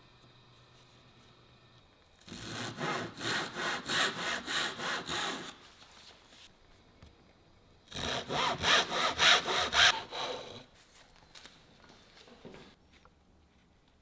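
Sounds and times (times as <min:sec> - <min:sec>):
hand saw cutting wood: 0:02.2 - 0:05.6, 0:07.9 - 0:10.7.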